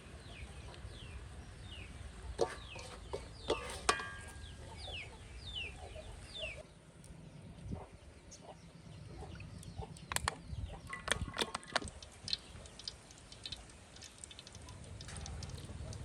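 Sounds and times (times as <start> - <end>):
chickens clucking: 2.0 - 6.6
sharp clicks and knocks: 10.0 - 16.0.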